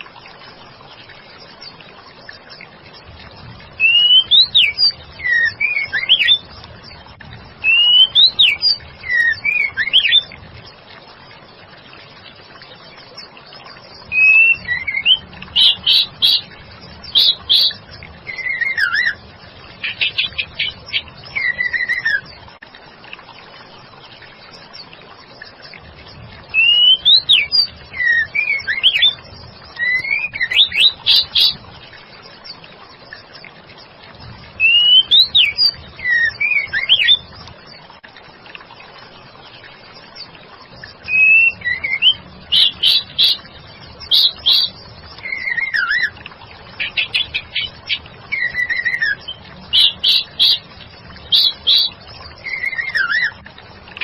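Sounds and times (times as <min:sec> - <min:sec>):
bird singing whistled notes: 0:03.8 - 0:06.5, 0:07.6 - 0:10.3, 0:14.0 - 0:19.2, 0:19.8 - 0:22.3, 0:26.5 - 0:31.6, 0:34.6 - 0:37.3, 0:41.0 - 0:46.2, 0:46.8 - 0:53.4.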